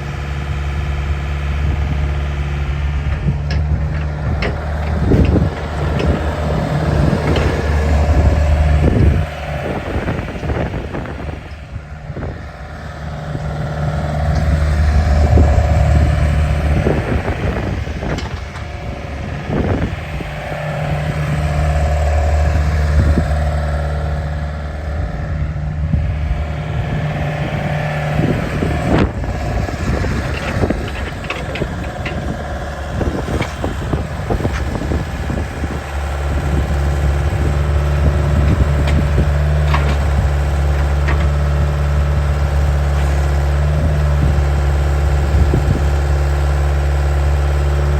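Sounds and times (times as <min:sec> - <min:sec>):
excavator diesel engine running: 0:00.0 - 0:47.9
metal knocks and clanks: 0:03.1 - 0:11.6, 0:26.3 - 0:34.9.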